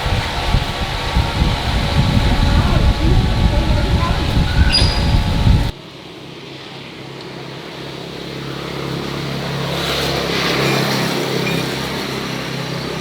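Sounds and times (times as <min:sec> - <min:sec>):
engine humming: 0:00.0 - 0:05.8.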